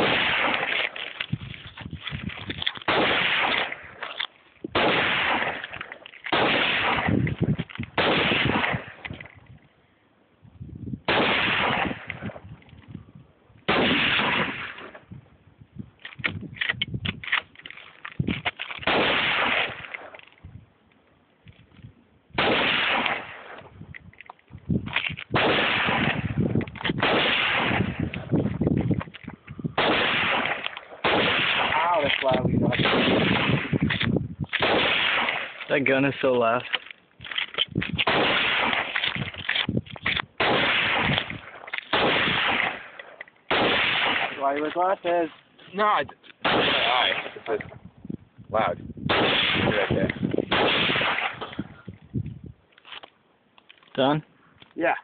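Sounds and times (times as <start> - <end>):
rifle gunshots with echo: 0.0 - 1.0, 2.9 - 4.1, 4.7 - 9.1, 11.0 - 12.4, 13.7 - 15.0, 18.8 - 20.1, 22.4 - 23.7, 25.3 - 28.3, 29.8 - 36.2, 38.0 - 39.2, 40.4 - 45.2, 46.4 - 47.6, 49.1 - 51.8.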